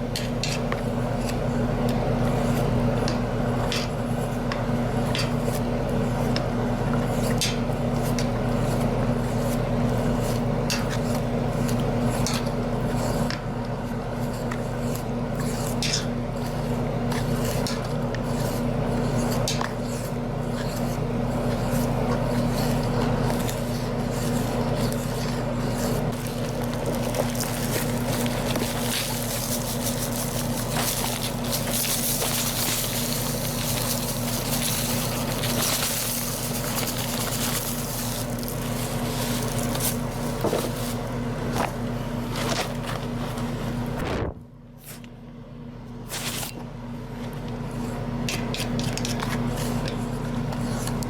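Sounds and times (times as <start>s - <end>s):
steady low hum: 0.0s - 51.0s
wet concrete stirred and scraped: 14.1s - 43.2s.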